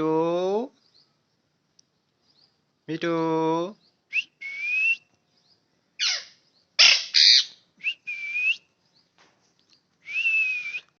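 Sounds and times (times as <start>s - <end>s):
parrot screeching and squawking: 6.0s - 7.6s
parrot whistled calls: 6.0s - 8.6s.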